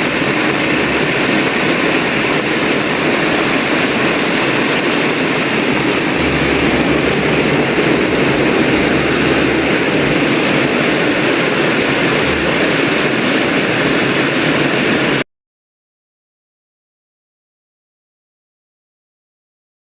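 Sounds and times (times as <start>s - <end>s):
heavy rain pouring: 0.0s - 15.2s.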